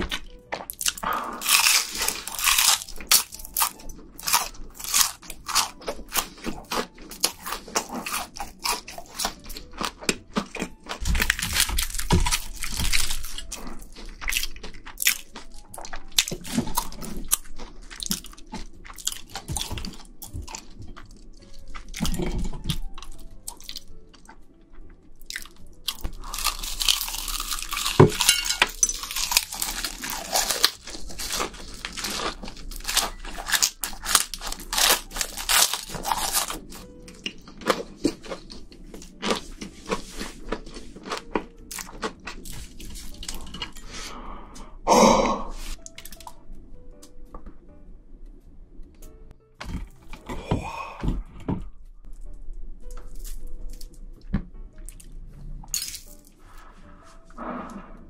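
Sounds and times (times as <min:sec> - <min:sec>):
crunching fried shrimp: 0:00.0 - 0:24.4, 0:25.1 - 0:43.9.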